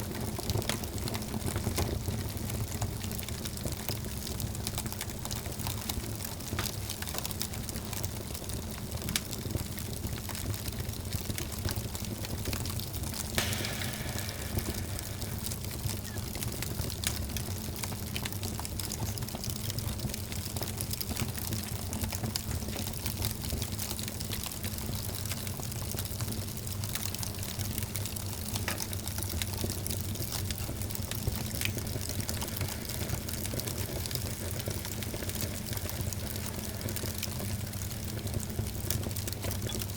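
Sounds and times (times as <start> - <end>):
wood fire crackling and popping: 0.0 - 39.9
fire hiss: 13.4 - 16.7.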